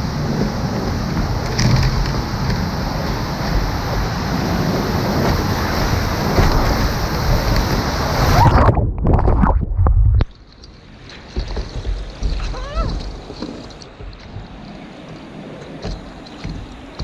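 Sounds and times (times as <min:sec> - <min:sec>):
river rushing through rapids: 0:00.0 - 0:08.7.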